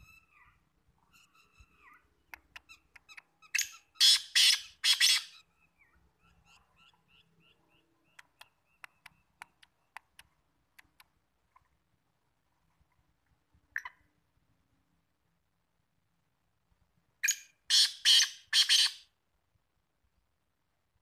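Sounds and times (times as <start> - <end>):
bird squawking: 0.0 - 8.8, 17.2 - 19.1
soft bird chirps: 0.0 - 11.9
sharp ticks: 8.2 - 11.2.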